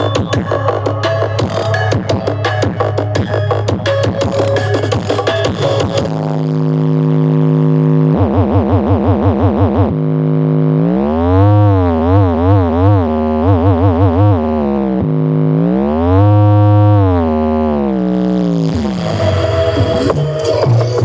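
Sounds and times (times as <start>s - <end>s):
electronic dance music: 0.0s - 10.0s, 18.1s - 21.0s
buzzy synthesized test tone: 0.0s - 21.0s.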